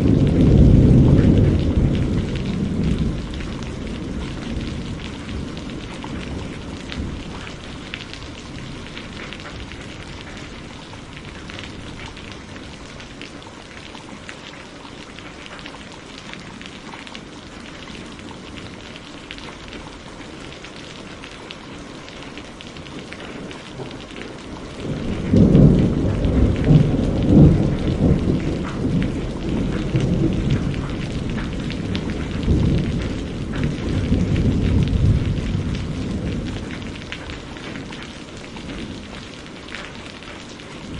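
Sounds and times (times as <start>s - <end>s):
deep rumble of thunder: 0.0s - 13.4s, 22.9s - 40.9s
steady rain falling: 0.0s - 40.9s.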